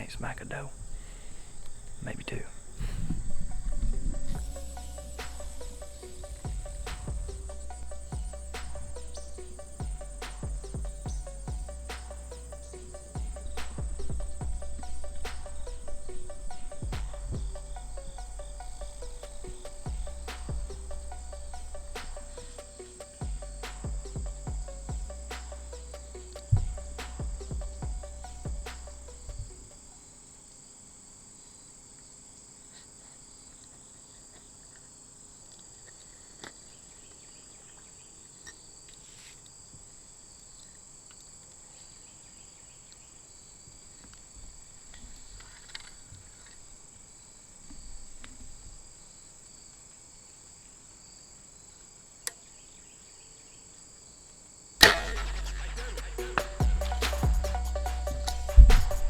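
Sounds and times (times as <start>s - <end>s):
crickets chirring: 0.0s - 59.0s
sharp crack: 2.3s - 27.8s, 54.8s - 59.0s
background music: 2.7s - 29.9s, 54.8s - 59.0s.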